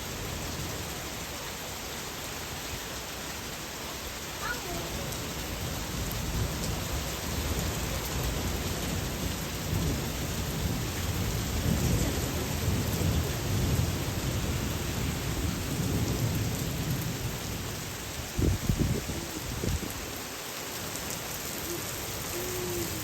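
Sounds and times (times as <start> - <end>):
steady rain falling: 0.0 - 23.0
rolling thunder rumble: 4.9 - 20.1.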